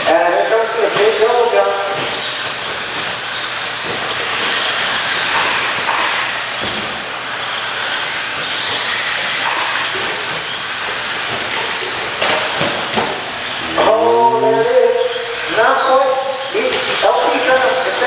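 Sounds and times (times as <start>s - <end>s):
rc truck motors whining: 12.8s - 14.8s.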